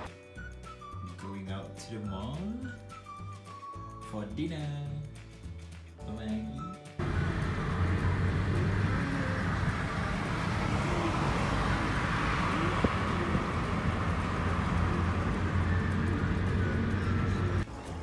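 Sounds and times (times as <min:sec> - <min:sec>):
road traffic rumble: 0:07.0 - 0:17.6.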